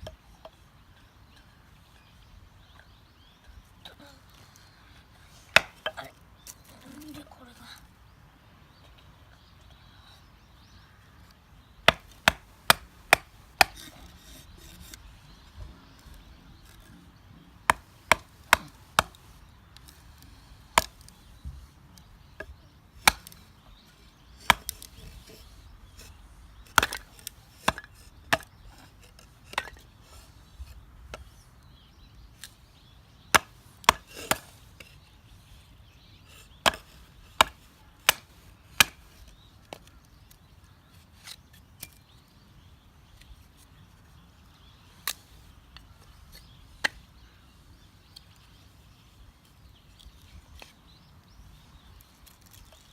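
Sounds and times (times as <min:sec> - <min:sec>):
knife splitting firewood knocks: 0:11.9 - 0:14.8, 0:17.7 - 0:19.2, 0:24.4 - 0:24.9, 0:26.7 - 0:28.5.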